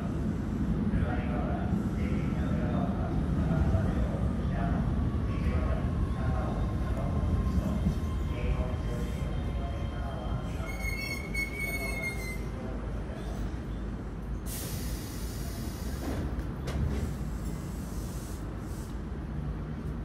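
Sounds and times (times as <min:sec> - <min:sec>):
low train rumble: 0:00.0 - 0:20.0
train brake squeal: 0:10.4 - 0:12.6
compressed air hiss: 0:14.5 - 0:16.0, 0:17.0 - 0:19.0.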